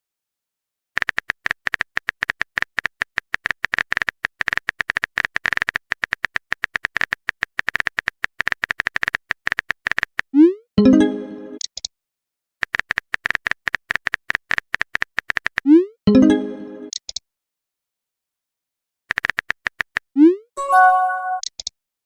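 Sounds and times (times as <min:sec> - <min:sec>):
short typing beeps: 0:20.3 - 0:21.7
brief pitched tone: 0:20.6 - 0:21.5.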